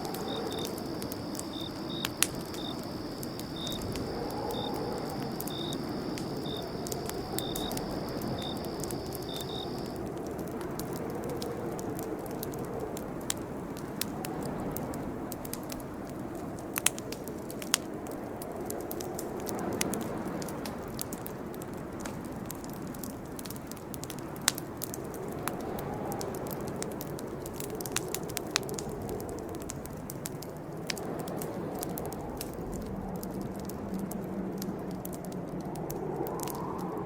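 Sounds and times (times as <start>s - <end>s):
crickets chirping: 0.0s - 10.0s
campfire crackling: 0.0s - 37.0s.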